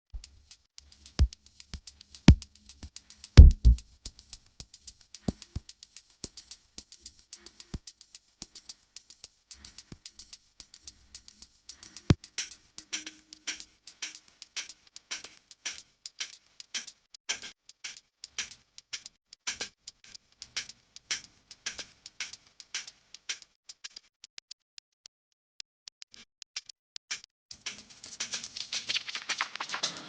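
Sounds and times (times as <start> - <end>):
sharp clicks and taps: 1.2 - 4.2.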